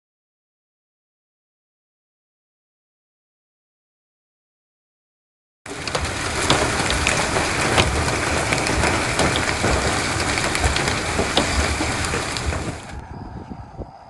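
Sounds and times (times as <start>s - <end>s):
heavy rain pelting hard surface: 5.7s - 13.0s.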